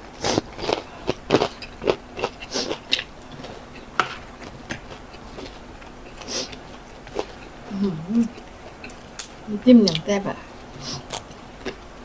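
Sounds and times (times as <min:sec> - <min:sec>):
crunchy chewing of fried fish: 0:00.2 - 0:07.7.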